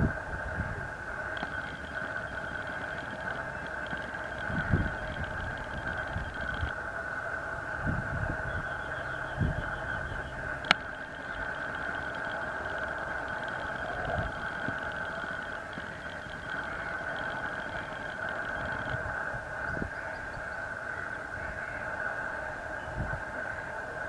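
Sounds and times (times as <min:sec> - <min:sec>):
faint rapid chirping: 0:00.0 - 0:24.0
jet engines whining at idle: 0:00.0 - 0:24.0.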